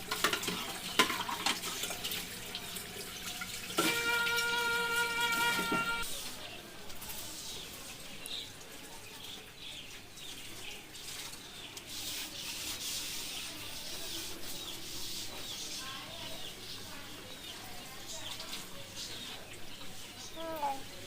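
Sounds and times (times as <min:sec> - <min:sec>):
rubbing scrubbing noise: 0:11.0 - 0:16.2.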